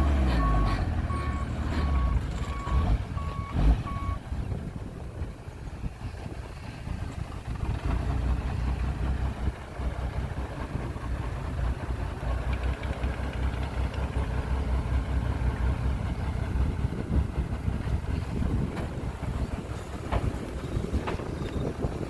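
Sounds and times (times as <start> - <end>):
diesel engine rumbling: 0.0 - 22.0.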